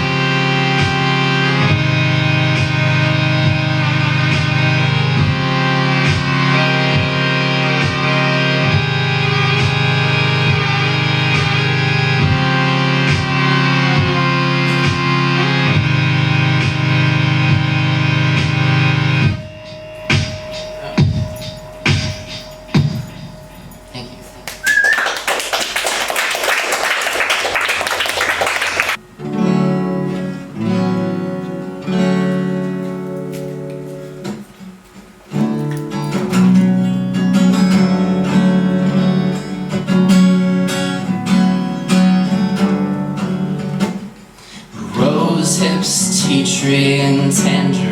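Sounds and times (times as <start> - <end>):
rock band playing instrumental: 0.0 - 23.8
acoustic guitar chords strummed: 0.0 - 24.6, 29.0 - 47.9
steady drum beat: 20.1 - 23.3.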